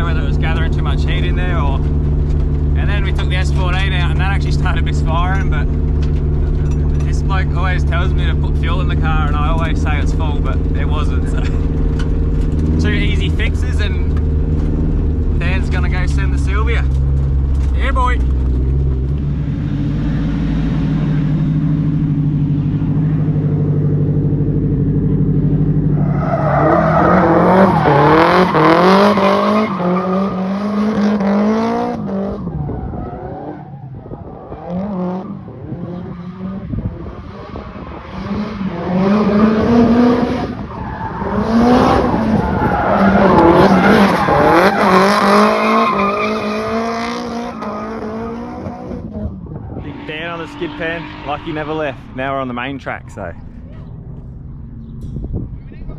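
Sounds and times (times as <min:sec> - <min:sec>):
car engine revving: 0:00.0 - 0:55.9
tyres squealing: 0:26.0 - 0:31.1, 0:40.7 - 0:48.0.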